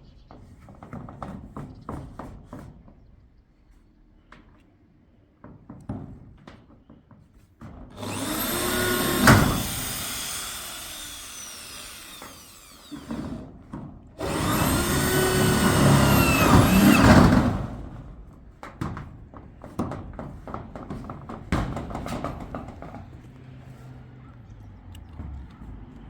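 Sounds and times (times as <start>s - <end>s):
power tool motor whining: 8.0s - 13.5s, 14.2s - 17.8s.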